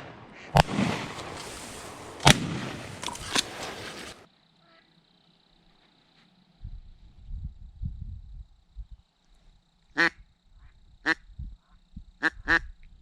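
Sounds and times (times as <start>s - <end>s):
faint gunshot cracks: 0.0s - 4.2s
shotgun blasts: 0.0s - 4.2s.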